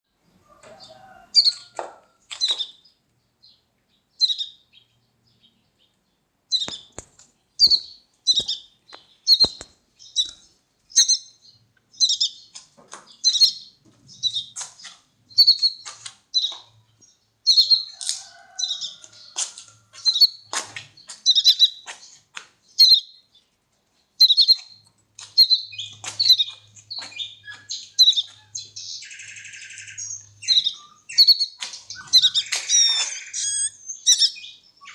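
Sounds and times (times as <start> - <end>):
baby bird chirping: 0.5 - 2.8, 4.2 - 4.6, 6.5 - 12.6, 13.2 - 16.7, 17.4 - 19.4, 20.0 - 22.2, 22.8 - 23.2, 24.2 - 34.9.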